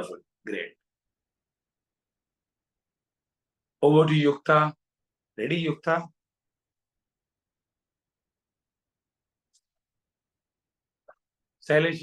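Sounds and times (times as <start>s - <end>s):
man speaking: 0.0s - 0.8s.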